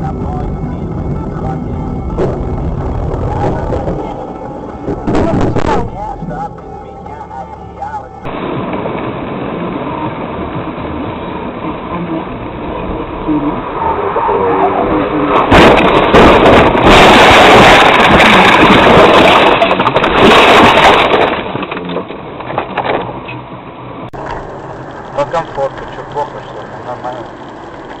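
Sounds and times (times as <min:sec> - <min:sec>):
loud harsh noise: 0:00.0 - 0:21.4
car engine and road noise: 0:00.0 - 0:28.0.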